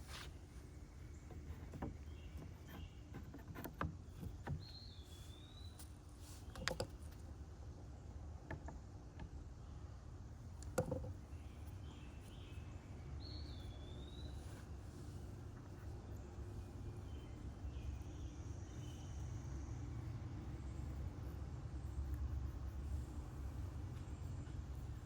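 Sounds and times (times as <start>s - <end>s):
light knocks and taps: 10.6s - 11.2s.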